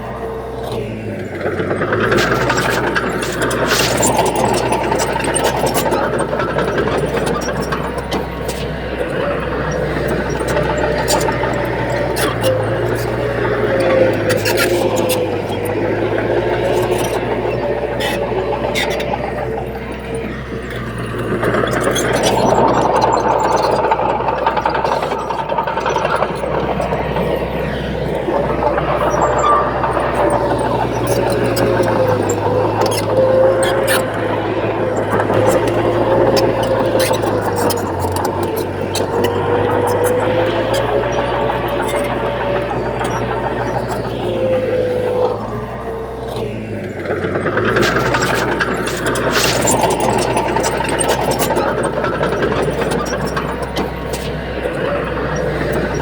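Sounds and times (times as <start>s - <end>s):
heavy diesel engine running: 0.0s - 56.0s
high-pitched squeal: 0.0s - 56.0s
sharp clicks and knocks: 0.6s - 56.0s.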